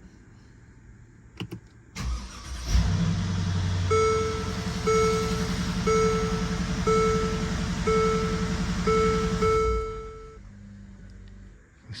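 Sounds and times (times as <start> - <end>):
car engine starting and idling: 1.3 - 12.0.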